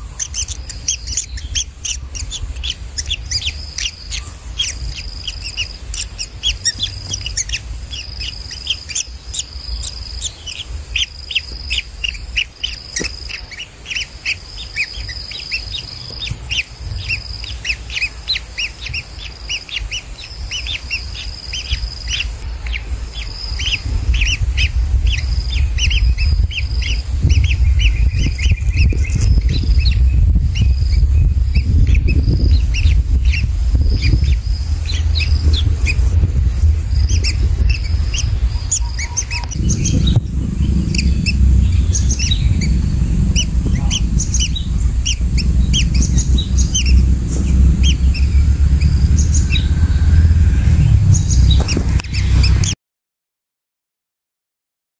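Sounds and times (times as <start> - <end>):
birds chirping: 0.0 - 52.8
loud low rumble: 19.9 - 52.8.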